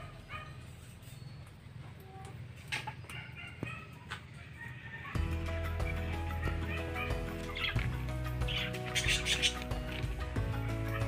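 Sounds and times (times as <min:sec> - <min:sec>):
faint bird calls: 0:06.4 - 0:09.8.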